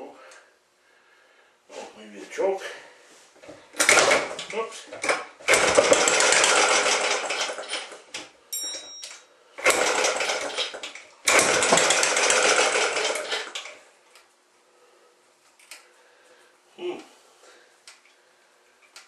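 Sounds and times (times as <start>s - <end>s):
small engine cranking: 3.8s - 4.5s, 5.5s - 8.0s, 9.6s - 13.8s.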